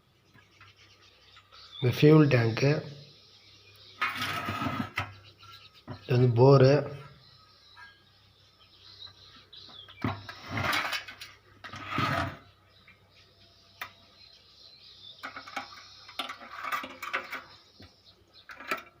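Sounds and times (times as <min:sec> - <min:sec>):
metal parts clattering and scraping: 0:04.0 - 0:05.1, 0:09.9 - 0:12.5, 0:15.2 - 0:17.7, 0:18.4 - 0:19.0.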